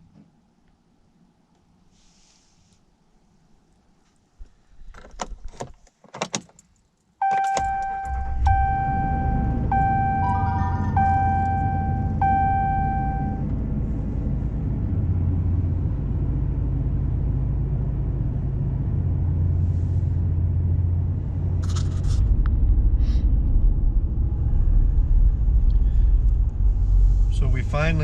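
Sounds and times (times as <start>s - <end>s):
warning chime beeping: 7.2s - 13.4s
engine and cabin rumble: 7.2s - 28.0s.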